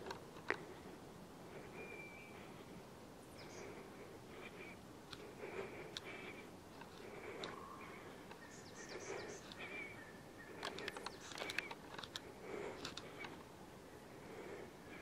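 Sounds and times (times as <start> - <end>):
small birds chirping: 0.0 - 15.0
sharp camera clicks: 10.6 - 13.4.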